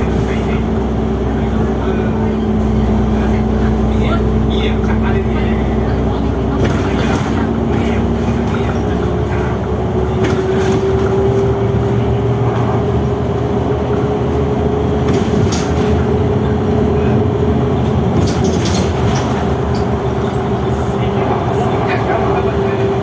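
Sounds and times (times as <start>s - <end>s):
bus engine and road rumble: 0.0s - 23.0s
short rattles and knocks: 18.1s - 20.0s.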